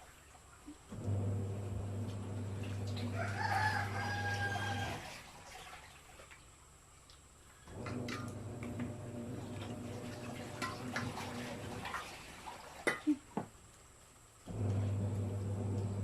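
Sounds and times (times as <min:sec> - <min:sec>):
rooster crowing: 0:03.0 - 0:05.1.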